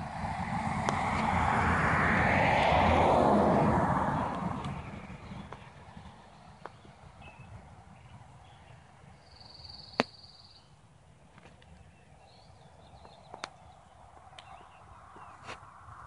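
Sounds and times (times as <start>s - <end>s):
distant birds calling: 4.2s - 15.8s.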